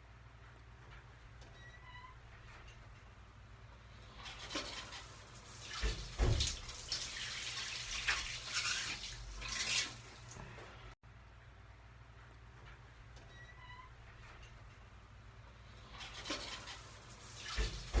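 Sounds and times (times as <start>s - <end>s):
shower water splashing: 4.3s - 10.5s, 16.2s - 18.0s.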